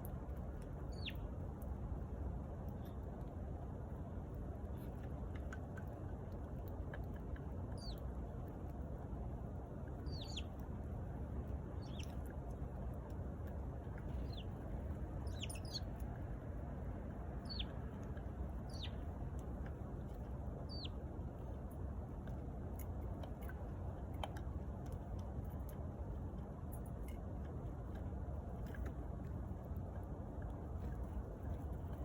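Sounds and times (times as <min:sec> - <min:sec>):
low background noise: 0:00.0 - 0:32.0
sparrow chirping: 0:00.9 - 0:01.3, 0:07.8 - 0:08.0, 0:10.0 - 0:10.6, 0:11.6 - 0:12.3, 0:14.0 - 0:16.0, 0:17.4 - 0:19.2, 0:20.6 - 0:21.0.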